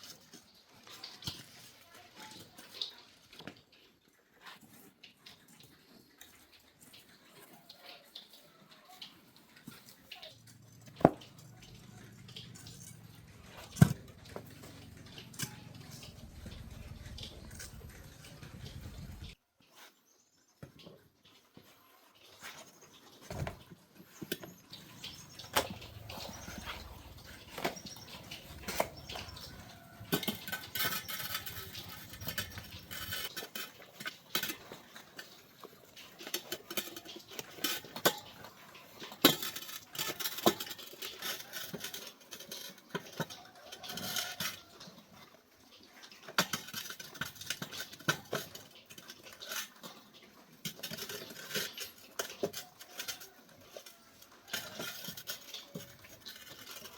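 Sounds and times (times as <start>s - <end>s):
metal tools clinking: 9.6s - 19.4s, 23.3s - 44.7s.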